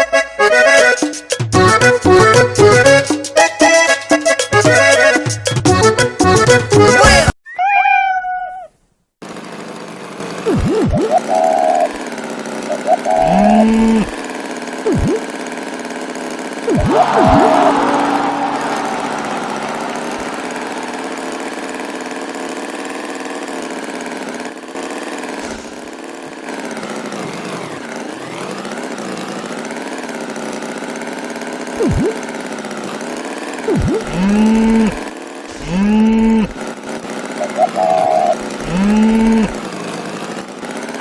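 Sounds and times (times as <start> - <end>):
engine running: 9.2 - 41.0.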